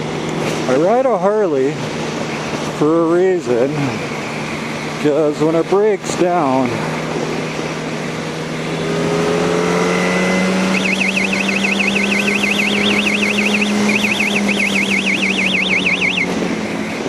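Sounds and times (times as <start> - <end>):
motorcycle engine cruising: 0.0 - 17.0
high warbling tone: 10.3 - 16.6.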